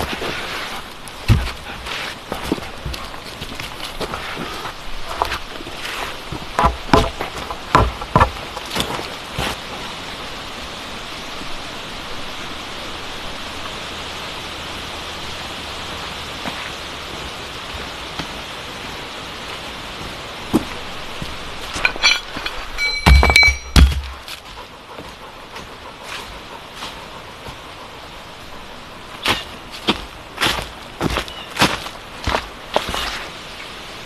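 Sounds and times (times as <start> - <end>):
heavy rain hissing: 0.0 - 6.6, 8.5 - 22.8, 31.9 - 34.0
sharp knocks: 6.6 - 8.4, 22.8 - 24.2.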